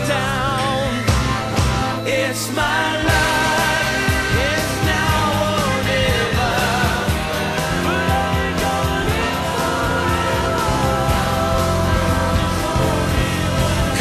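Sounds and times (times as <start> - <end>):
man singing: 0.0 - 1.2, 1.9 - 14.0
electric guitar: 0.0 - 14.0
drum beat: 3.1 - 14.0.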